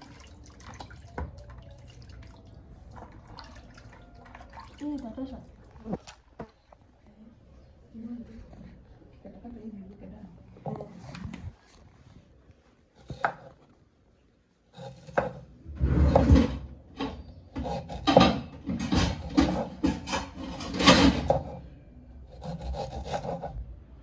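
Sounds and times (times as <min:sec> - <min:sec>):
rough scraping and rubbing: 0:14.8 - 0:21.6, 0:22.4 - 0:23.6.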